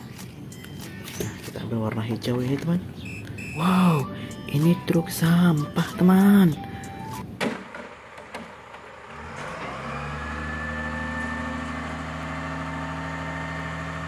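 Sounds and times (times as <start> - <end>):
engine starting and running: 7.4 - 14.0.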